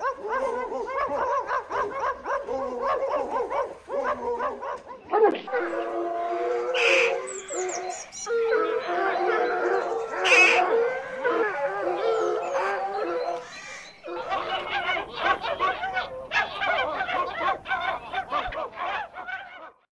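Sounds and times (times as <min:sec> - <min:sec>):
dogs howling: 0:00.0 - 0:19.9
geese honking: 0:05.5 - 0:10.7, 0:13.3 - 0:19.8
higher yelps: 0:06.7 - 0:08.9, 0:10.2 - 0:10.6.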